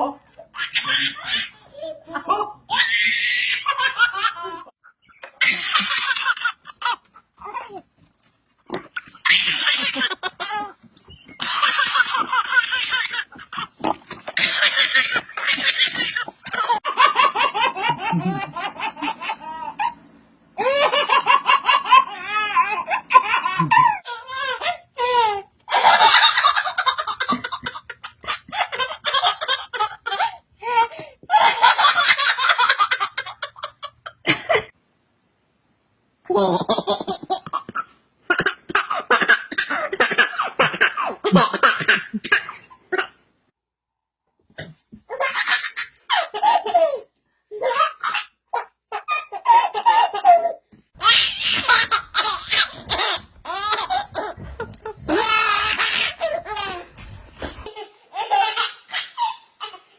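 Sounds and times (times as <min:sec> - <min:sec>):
child laughing: 0:08.7 - 0:20.0, 0:20.6 - 0:34.7, 0:49.0 - 0:59.9
young child laughing: 0:20.6 - 0:24.4.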